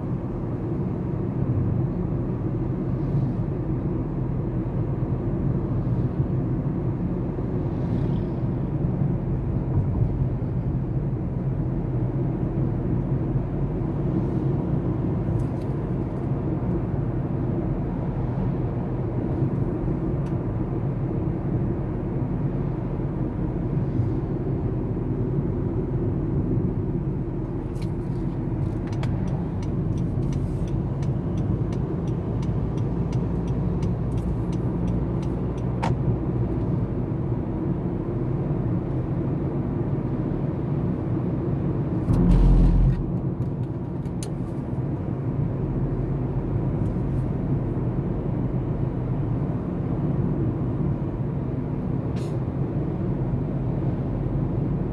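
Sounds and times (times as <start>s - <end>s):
baler engine droning: 41.6s - 44.6s.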